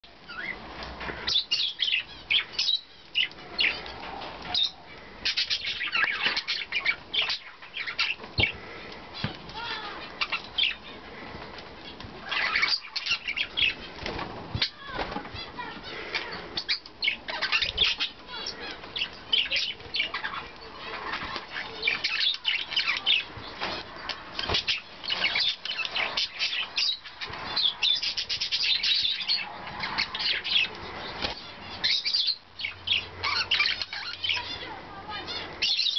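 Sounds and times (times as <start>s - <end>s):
budgies chirping and chattering: 0.1s - 35.9s
wings flapping: 11.3s - 16.4s.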